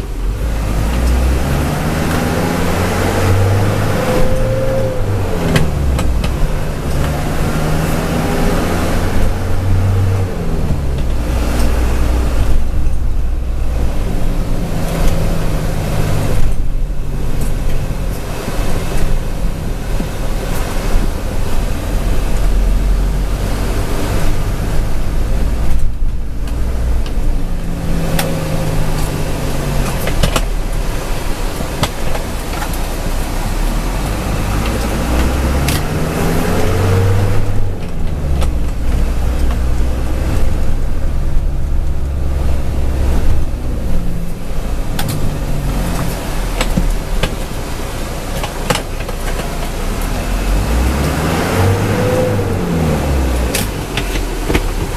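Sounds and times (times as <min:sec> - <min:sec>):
truck engine rumbling: 0:00.0 - 0:54.9
sharp knocks and rattles: 0:53.4 - 0:54.9.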